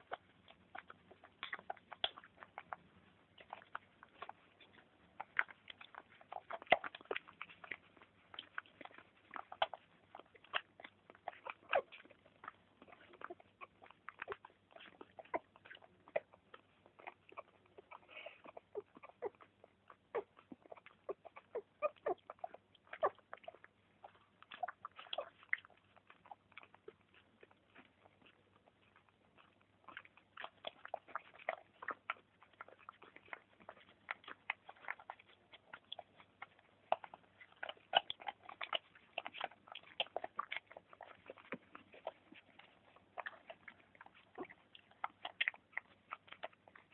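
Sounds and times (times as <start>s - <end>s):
puppies chewing and smacking: 0.0s - 46.9s
puppy squeak: 20.1s - 23.2s.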